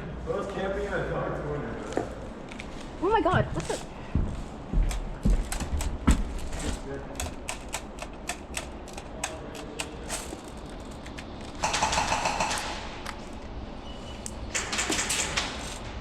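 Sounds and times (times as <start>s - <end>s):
airsoft gun shots: 11.6s - 13.0s
rapid full-auto bursts: 11.6s - 13.0s.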